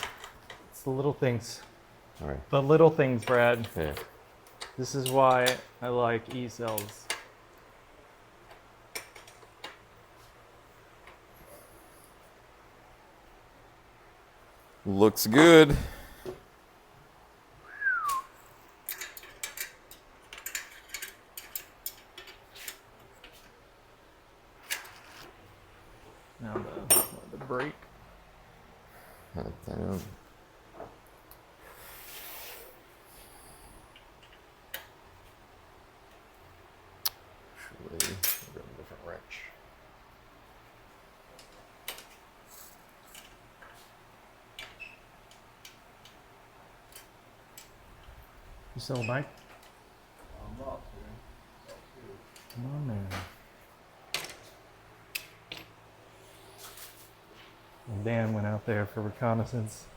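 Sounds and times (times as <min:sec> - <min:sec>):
hand tools clinking on metal: 0:26.9 - 0:27.7.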